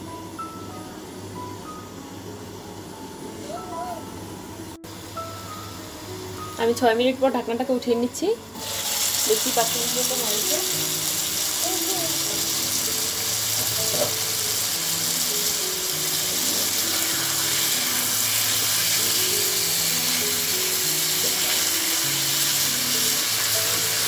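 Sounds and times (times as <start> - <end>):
soft background music: 0.0 - 24.0
curry sizzling in a pan: 4.9 - 24.0.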